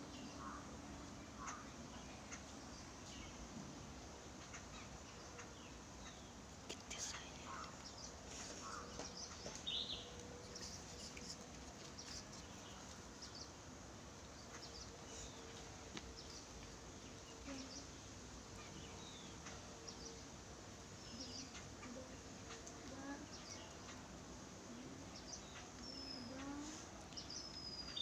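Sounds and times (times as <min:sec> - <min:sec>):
faint steady hum: 0:00.0 - 0:28.0
small birds chirping: 0:00.0 - 0:28.0.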